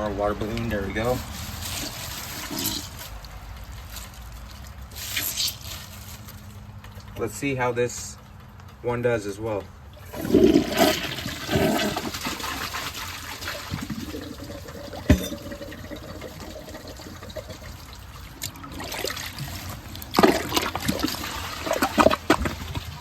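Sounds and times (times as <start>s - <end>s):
water sloshing: 9.7s - 23.0s
toilet flushing: 10.0s - 23.0s.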